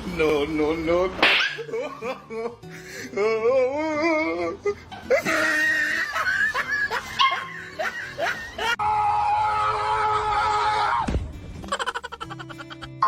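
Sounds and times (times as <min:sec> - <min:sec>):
background music: 0:00.0 - 0:13.0
dog yelping: 0:01.3 - 0:01.8, 0:07.2 - 0:07.6.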